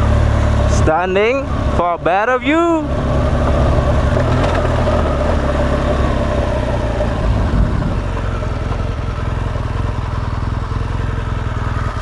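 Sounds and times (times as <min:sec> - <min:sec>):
motorcycle engine running: 0:00.0 - 0:12.0
wind noise on microphone: 0:07.3 - 0:08.3.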